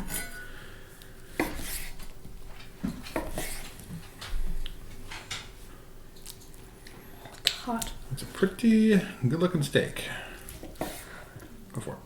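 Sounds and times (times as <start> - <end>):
knife and fork scraping plate: 0.0 - 0.5, 3.1 - 3.7.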